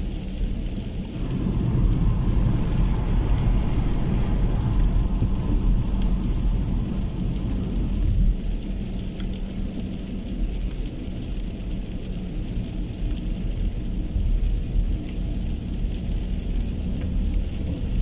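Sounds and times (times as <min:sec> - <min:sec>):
deep thunder rumble: 0:00.0 - 0:10.5
steady rain: 0:00.0 - 0:18.0
wind: 0:00.0 - 0:18.0.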